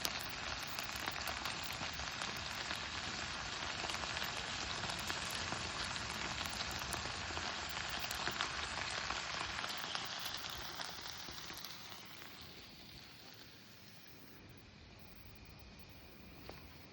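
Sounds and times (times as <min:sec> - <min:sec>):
food sizzling over fire: 0:00.0 - 0:16.9.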